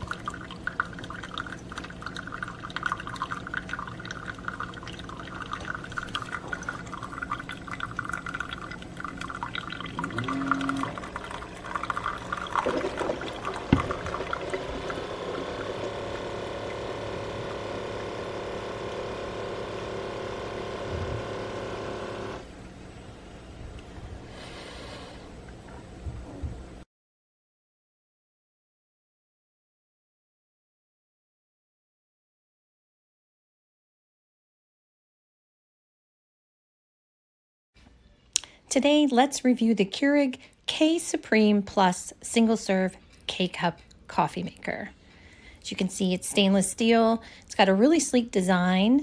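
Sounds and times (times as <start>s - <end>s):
coffee maker dispensing coffee: 0.0s - 22.5s.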